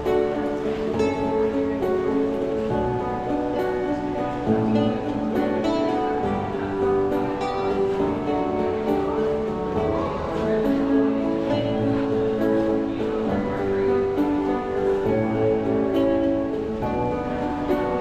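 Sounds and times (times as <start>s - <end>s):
plucked string instrument music: 0.0s - 18.0s.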